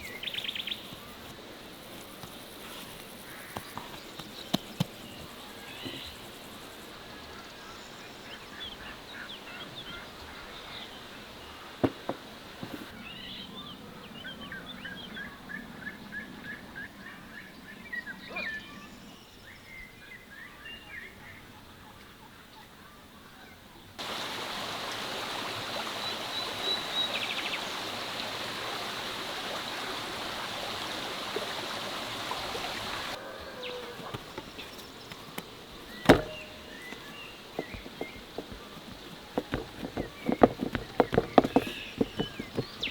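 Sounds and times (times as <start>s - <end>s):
birds chirping: 32.2s - 42.9s
sharp knock: 36.0s - 36.5s.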